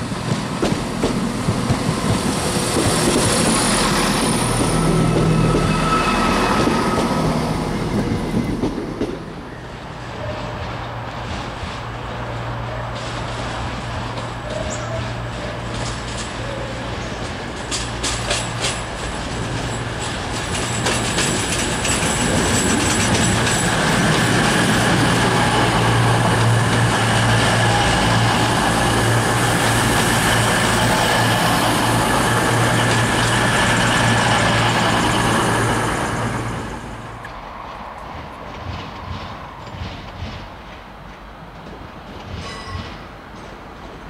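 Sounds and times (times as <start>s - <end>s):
diesel train engine hum: 0.0s - 44.0s
train wheels on track: 0.0s - 44.0s.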